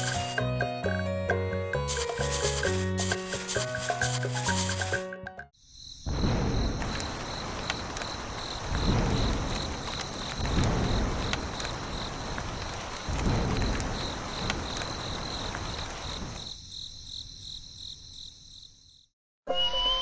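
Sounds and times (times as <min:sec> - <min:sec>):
insects chirping: 0:00.0 - 0:00.5, 0:01.9 - 0:19.1
music with whistle-like glides: 0:00.0 - 0:01.9.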